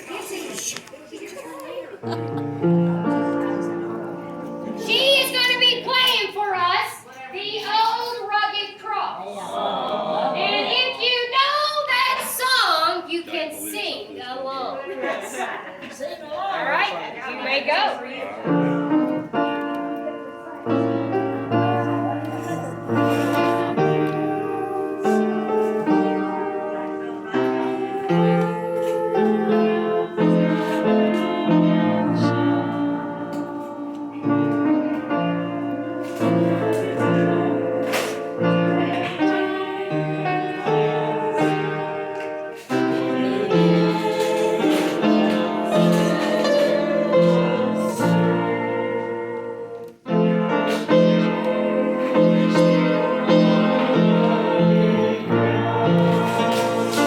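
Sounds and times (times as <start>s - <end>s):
piano playing: 2.0s - 8.3s, 18.2s - 57.0s.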